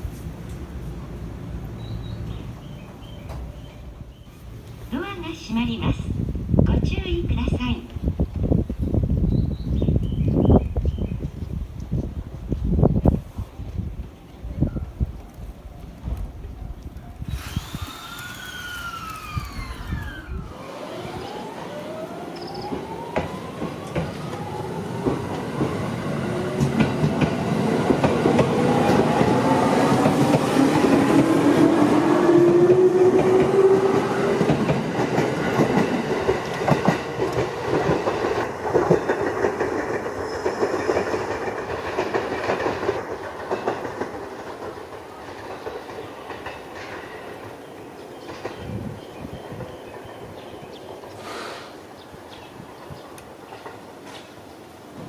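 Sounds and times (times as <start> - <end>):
wheels clacking over rail joints: 16.2 - 21.0, 32.4 - 51.2, 53.0 - 55.0
train traction motors whining: 17.2 - 25.4.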